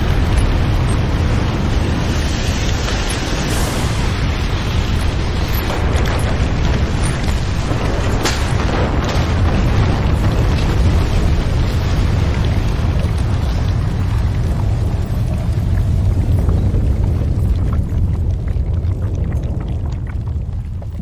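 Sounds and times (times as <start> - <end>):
sharp cracks: 0.0 - 15.6
deep earthquake rumble: 0.0 - 21.0.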